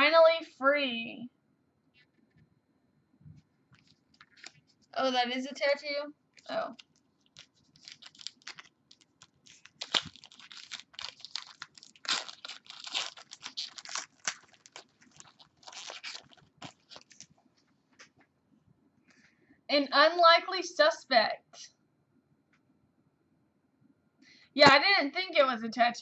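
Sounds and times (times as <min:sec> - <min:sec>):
cards and packaging rustling: 0:03.8 - 0:05.0, 0:06.4 - 0:17.4.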